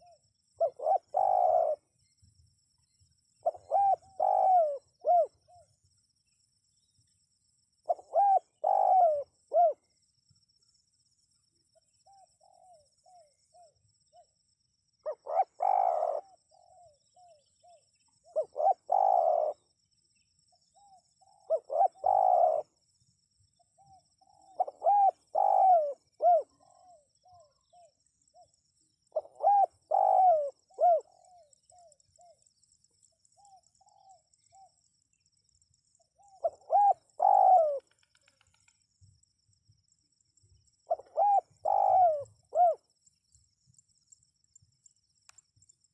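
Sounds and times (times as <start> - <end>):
dove cooing: 0.0 - 1.9, 3.4 - 5.7, 7.8 - 9.8, 12.0 - 14.3, 15.0 - 19.7, 20.8 - 22.8, 23.8 - 28.5, 29.1 - 32.4, 33.4 - 34.8, 36.2 - 38.2, 40.9 - 42.8.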